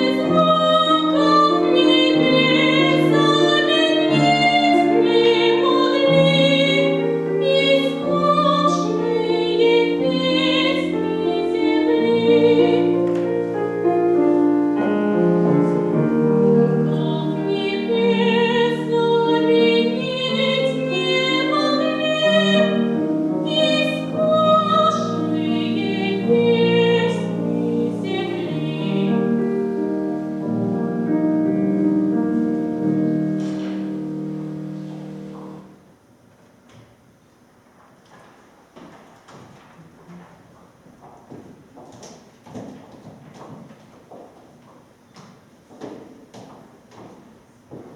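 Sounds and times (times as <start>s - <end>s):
person singing opera: 0.0s - 13.5s, 14.8s - 29.4s
piano: 0.0s - 47.9s.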